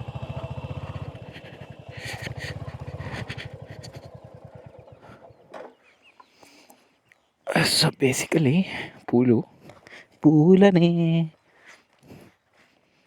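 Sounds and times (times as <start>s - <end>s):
motorcycle engine idling: 0.0s - 6.0s.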